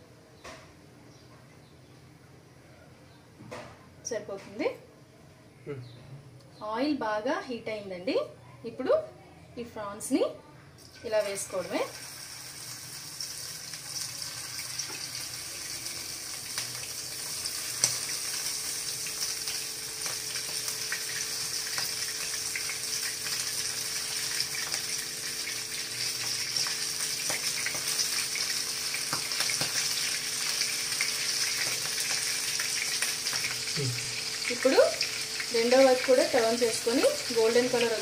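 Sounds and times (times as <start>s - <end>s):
prawns sizzling in hot oil: 10.8s - 38.0s.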